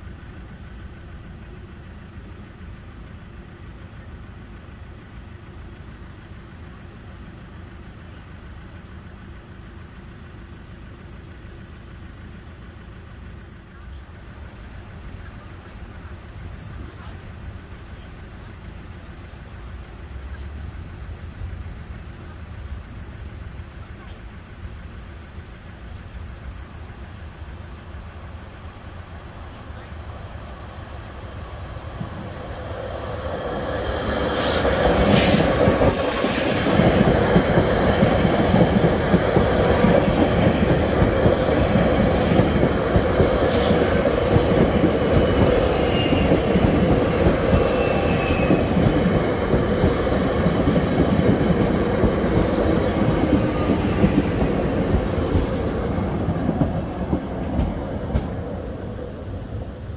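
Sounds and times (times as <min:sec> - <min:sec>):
electric train rumbling past: 0:00.0 - 0:59.9
faint wheel squeals: 0:45.2 - 0:49.0, 0:52.1 - 0:56.0.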